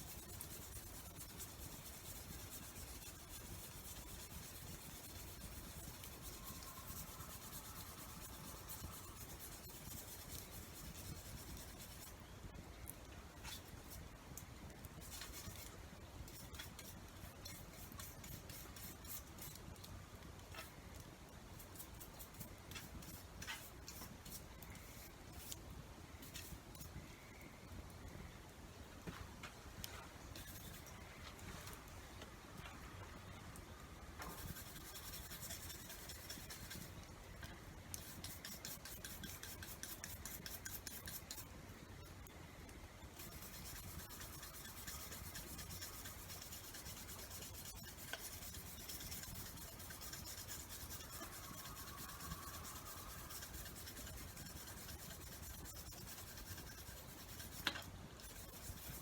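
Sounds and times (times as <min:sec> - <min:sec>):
hand tool rubbing and scraping: 0:00.0 - 0:12.2, 0:21.6 - 0:25.6, 0:30.4 - 0:31.8, 0:34.2 - 0:37.0, 0:37.9 - 0:41.5, 0:43.2 - 0:59.0
steady hiss: 0:00.0 - 0:59.0.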